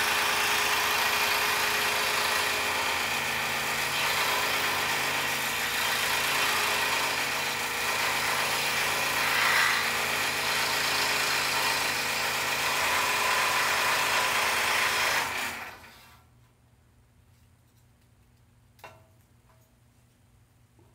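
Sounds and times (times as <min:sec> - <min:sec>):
scroll saw cutting wood: 0:00.0 - 0:16.2.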